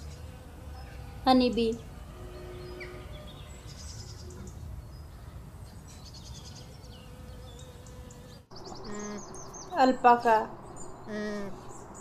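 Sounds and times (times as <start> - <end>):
birds chirping: 0.0 - 12.0
low rumble: 8.5 - 12.0.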